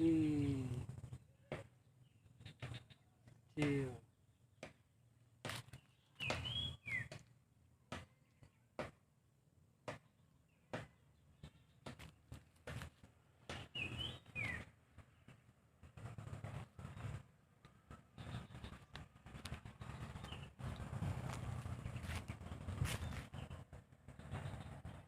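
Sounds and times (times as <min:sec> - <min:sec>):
bird calling: 0:05.7 - 0:07.2, 0:13.5 - 0:14.7.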